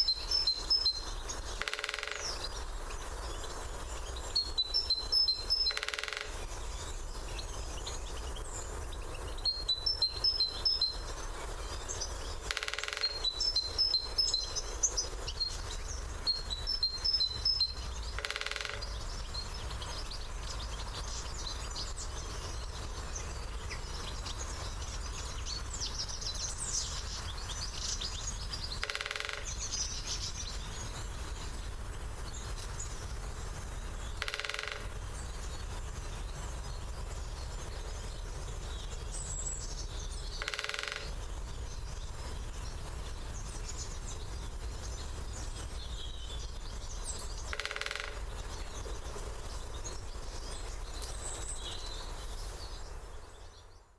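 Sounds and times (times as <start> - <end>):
woodpecker drumming: 0.0 - 2.6, 4.4 - 6.8, 9.8 - 19.6, 27.6 - 30.6, 33.8 - 35.4, 40.1 - 41.3, 46.9 - 48.8
small birds chirping: 0.0 - 53.9.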